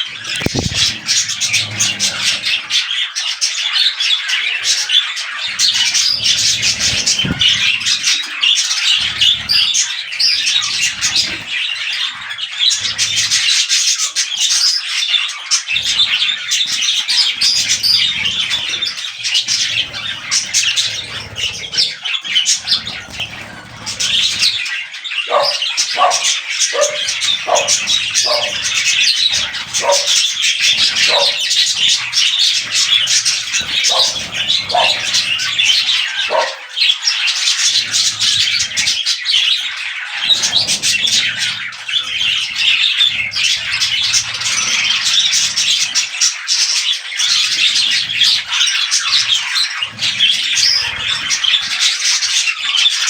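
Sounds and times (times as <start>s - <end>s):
budgerigars chattering: 0.0s - 53.0s
short lower-pitched bird calls: 25.3s - 36.7s.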